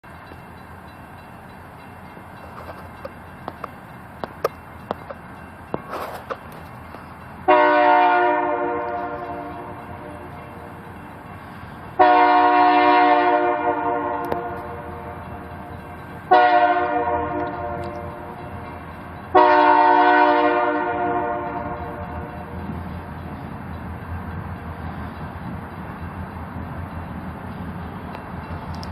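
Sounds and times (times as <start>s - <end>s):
train rumble: 0.0s - 28.9s
locomotive air horn blasts: 7.5s - 10.3s, 12.0s - 15.3s, 16.3s - 18.2s, 19.3s - 22.6s.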